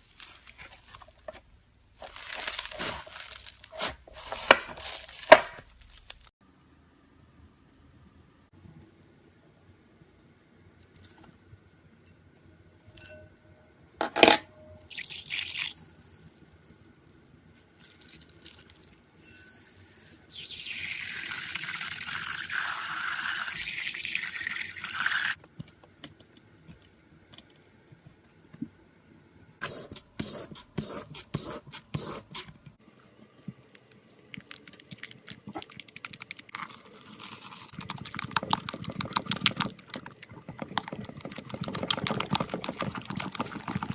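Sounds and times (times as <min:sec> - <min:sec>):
slime crackling: 0:02.0 - 0:06.3, 0:33.6 - 0:43.9.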